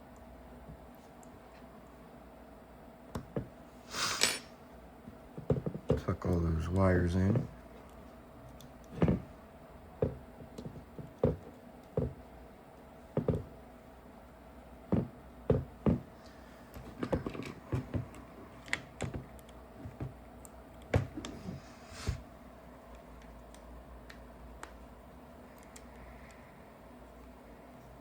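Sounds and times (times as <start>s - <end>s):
small parts clicking and tapping: 25.5s - 26.4s.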